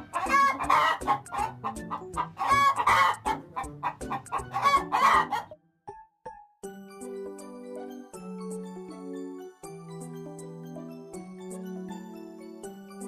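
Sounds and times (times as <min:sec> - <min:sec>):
hen drawn-out calls: 0:00.0 - 0:05.5
hens clucking: 0:00.0 - 0:05.5.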